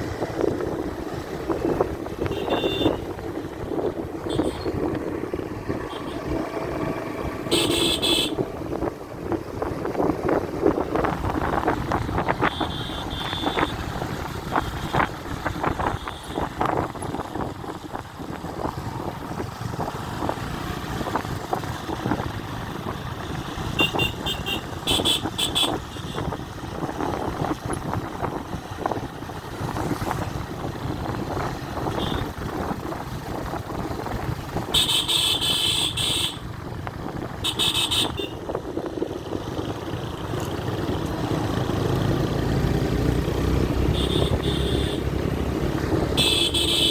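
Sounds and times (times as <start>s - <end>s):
motorcycle road and wind noise: 0.0s - 46.9s
vehicle horn beeping: 2.2s - 3.1s, 4.3s - 4.7s, 5.8s - 6.3s, 7.5s - 8.4s, 12.4s - 13.8s, 23.5s - 26.3s, 31.9s - 32.3s, 34.7s - 36.4s, 37.4s - 38.4s, 43.9s - 45.1s, 46.2s - 46.9s.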